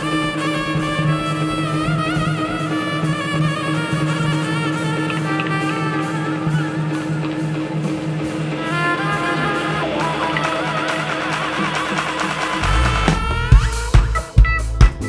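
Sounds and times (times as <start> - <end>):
drum kit beat: 0.0 - 15.0
guitar: 0.0 - 15.0
bass: 12.6 - 15.0.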